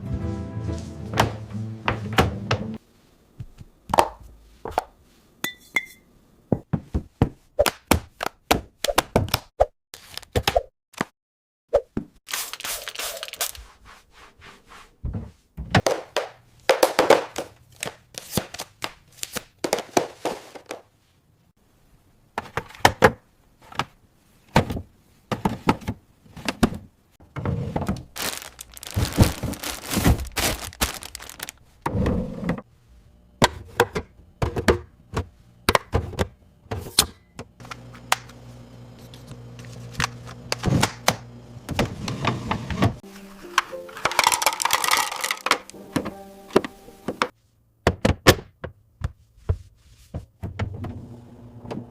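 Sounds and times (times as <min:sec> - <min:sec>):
wrappers crinkling: 0:12.3 - 0:13.6, 0:28.0 - 0:31.6, 0:44.0 - 0:45.7
food containers thunking and clattering: 0:22.4 - 0:32.7, 0:33.4 - 0:37.0.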